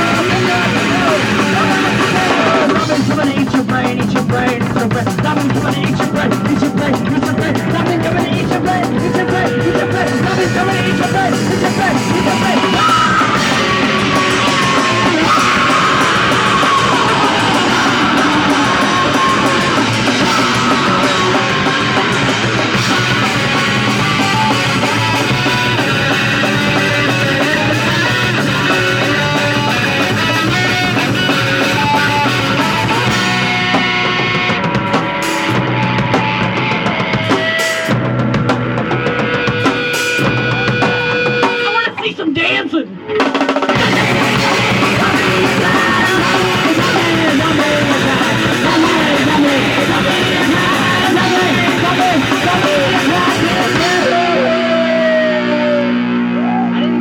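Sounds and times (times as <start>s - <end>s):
drum kit: 0.0s - 42.4s, 43.0s - 57.0s
distorted electric guitar: 0.0s - 57.0s.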